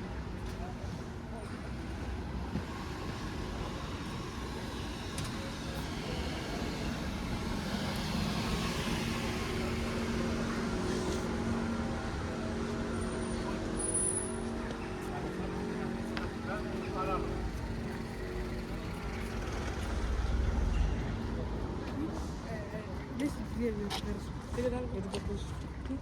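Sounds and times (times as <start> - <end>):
steady engine hum: 0.0 - 26.0
street traffic: 0.0 - 26.0
vehicle passing close: 16.6 - 22.5.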